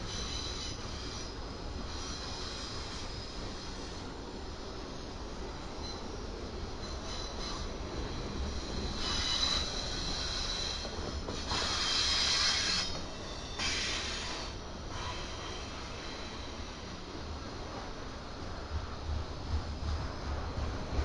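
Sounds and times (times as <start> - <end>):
freight train cars rumbling: 0.0 - 21.0
high-pitched wheel squeal: 6.8 - 15.7.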